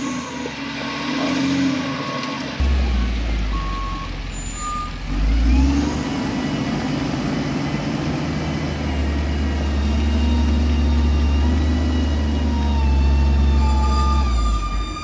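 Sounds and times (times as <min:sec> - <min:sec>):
short beep: 0:01.9 - 0:05.0
heavy diesel engine revving: 0:02.6 - 0:15.0.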